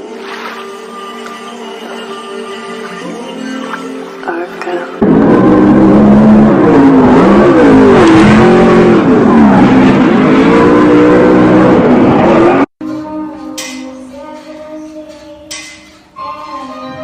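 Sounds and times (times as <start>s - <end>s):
car engine revving: 5.0s - 12.7s
rushing noise: 5.0s - 12.7s.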